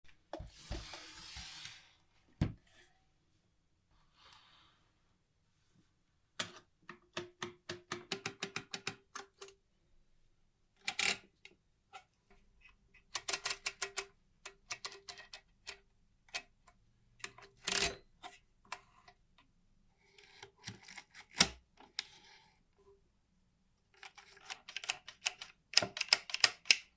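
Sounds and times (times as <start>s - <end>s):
mechanical calculator clicking: 13.2s - 15.3s, 24.2s - 26.9s.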